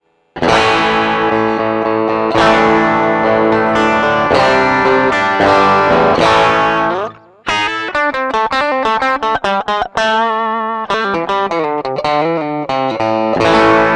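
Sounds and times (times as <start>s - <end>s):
electric guitar chords strummed: 0.4s - 13.9s
picked guitar notes: 0.4s - 13.9s.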